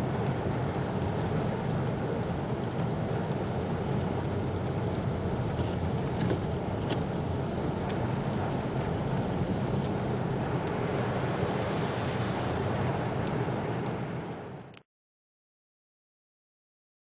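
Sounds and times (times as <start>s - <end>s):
car rumbling on the move: 0.0s - 14.8s.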